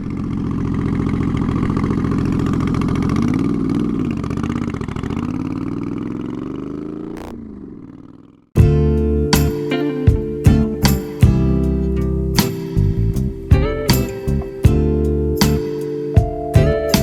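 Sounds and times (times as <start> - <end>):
motorcycle engine running: 0.0 - 9.5, 10.1 - 17.0
guitar music: 8.6 - 17.0.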